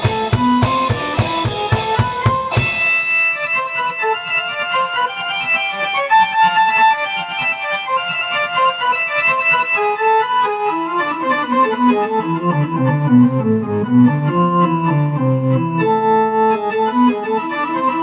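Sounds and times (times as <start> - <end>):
organ-sound keyboard chords: 0.0 - 18.0.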